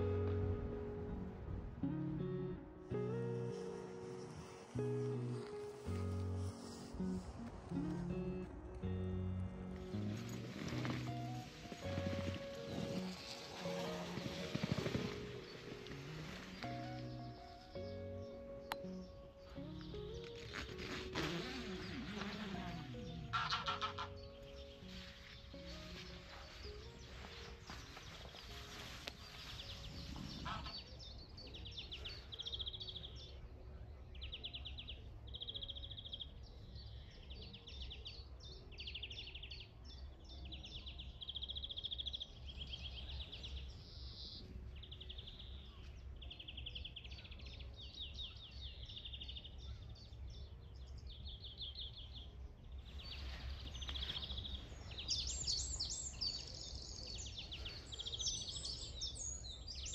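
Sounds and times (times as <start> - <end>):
birds chirping: 0.0 - 59.9
birds trilling: 9.8 - 33.4, 52.8 - 59.9.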